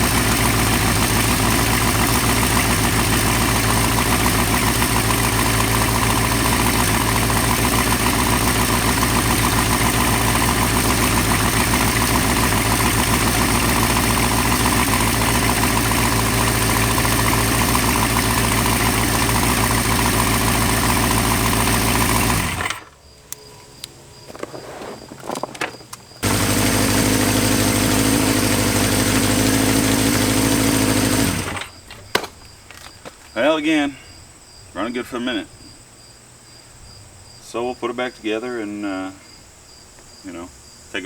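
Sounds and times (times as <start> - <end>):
motorcycle engine idling: 0.0 - 23.0, 25.5 - 33.3.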